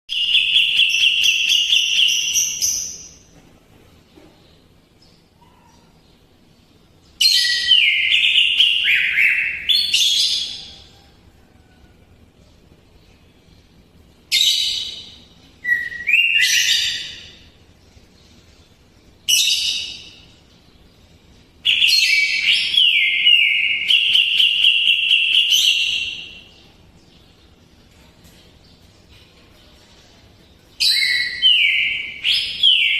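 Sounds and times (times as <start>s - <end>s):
bird singing whistled phrases: 14.3s - 17.3s, 30.8s - 32.9s.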